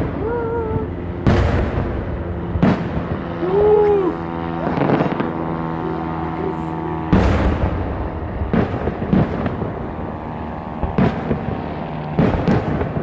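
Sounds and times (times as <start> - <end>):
fireworks booming: 0.0 - 6.3, 6.9 - 13.0
distant fireworks blasts: 0.0 - 13.0.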